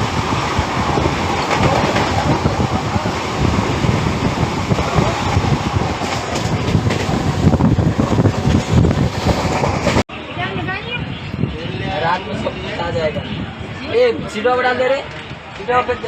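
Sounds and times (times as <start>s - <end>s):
wheels clattering over rails: 0.0s - 10.0s
train coaches rumbling: 0.0s - 16.0s.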